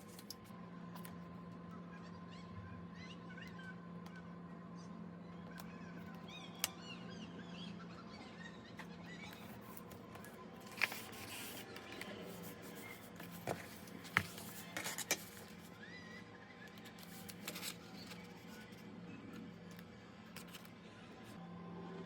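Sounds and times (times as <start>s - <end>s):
faint steady hum: 0.0s - 22.0s
paper rustling: 9.4s - 15.7s, 16.7s - 18.8s.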